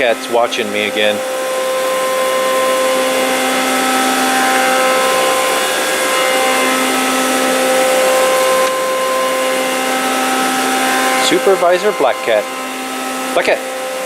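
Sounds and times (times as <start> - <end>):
machine motor droning: 0.0 - 14.0.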